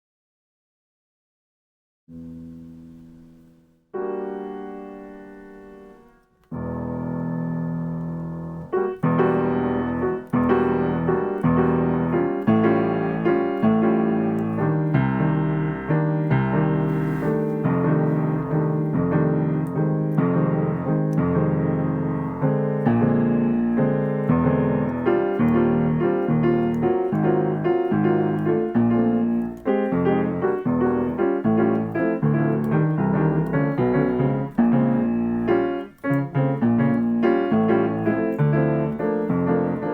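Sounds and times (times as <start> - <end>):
piano jazz chords: 2.1 - 39.9.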